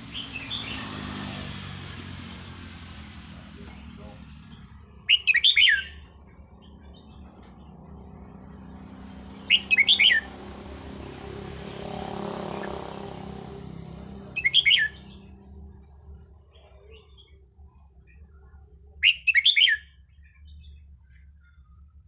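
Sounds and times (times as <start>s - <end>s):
bird singing whistled notes: 4.4s - 7.2s, 8.9s - 10.6s, 12.3s - 21.9s.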